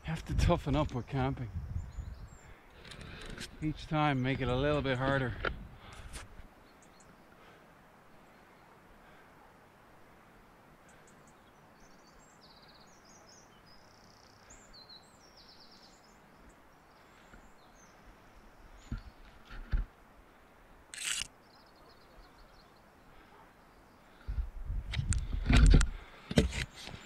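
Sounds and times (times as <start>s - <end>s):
songbirds chirping and trilling: 0.0s - 27.0s
steady outdoor hiss: 0.0s - 27.0s
brief rustle: 20.9s - 21.3s, 24.9s - 27.0s.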